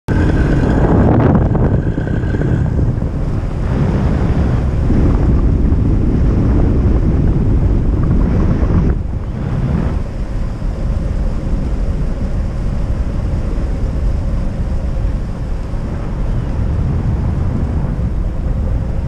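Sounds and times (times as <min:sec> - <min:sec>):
airflow rushing over microphone: 0:00.1 - 0:19.0.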